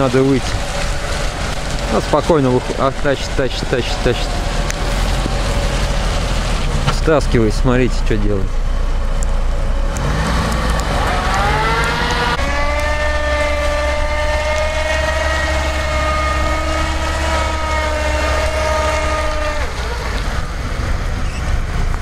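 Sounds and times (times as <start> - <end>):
car engine revving hard: 9.4 - 22.0.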